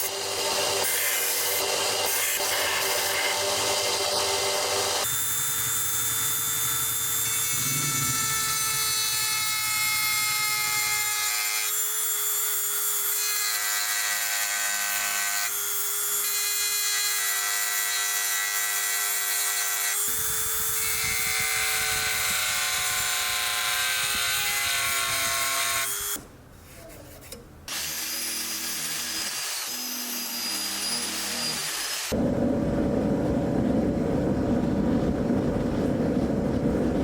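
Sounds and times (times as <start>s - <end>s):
metal scraping: 26.2s - 27.8s.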